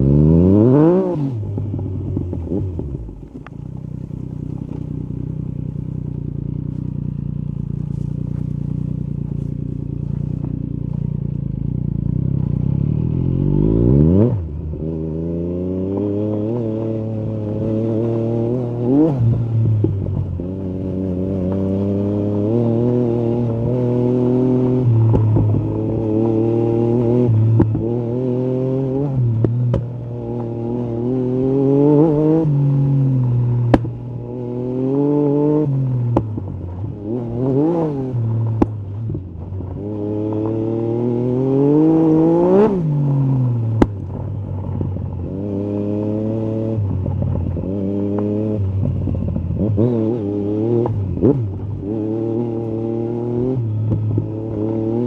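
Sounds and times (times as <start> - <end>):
motorcycle engine revving: 0.0 - 55.0
exhaust cracks: 24.6 - 26.0, 43.0 - 45.3.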